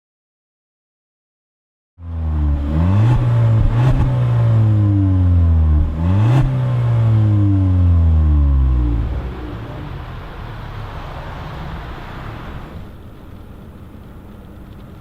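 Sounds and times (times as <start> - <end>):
car engine revving hard: 2.0 - 13.0.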